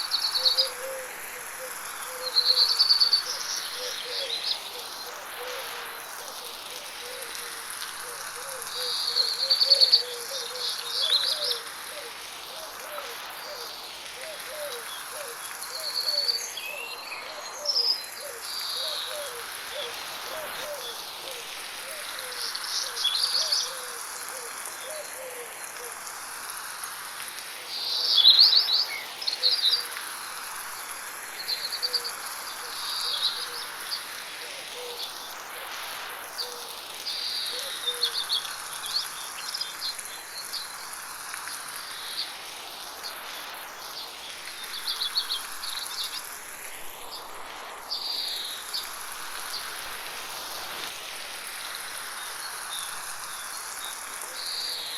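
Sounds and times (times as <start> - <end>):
high insect drone: 0.0 - 54.9
rain hiss: 0.0 - 54.9.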